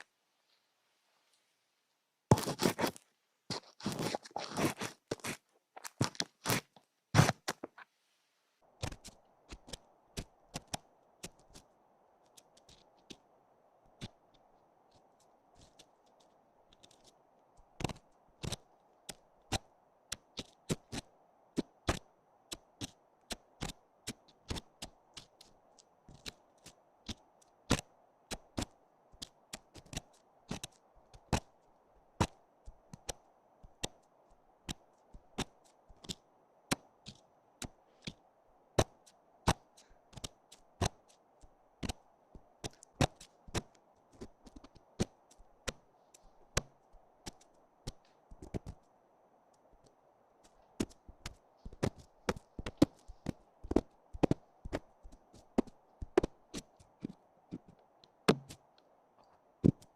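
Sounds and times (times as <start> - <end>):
faint steady hiss: 0.0 - 59.9
sharp clicks and taps: 55.6 - 58.9.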